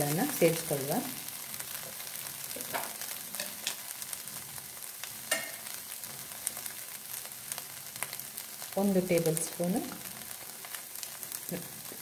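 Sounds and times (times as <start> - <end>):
vegetables sizzling in frying pan: 0.0 - 12.0.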